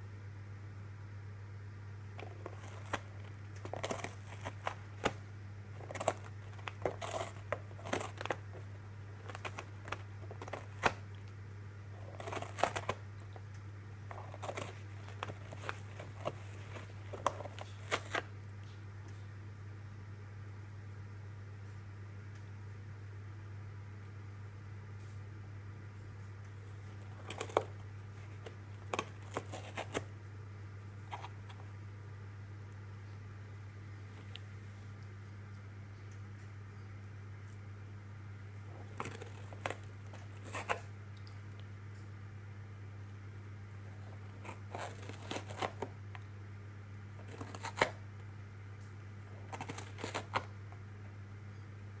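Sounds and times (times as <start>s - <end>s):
steady low hum: 0.0s - 52.0s
cat clawing crackly rustling: 2.0s - 18.6s, 26.6s - 31.7s, 38.4s - 41.3s, 43.7s - 46.0s, 47.1s - 48.0s, 49.2s - 50.8s.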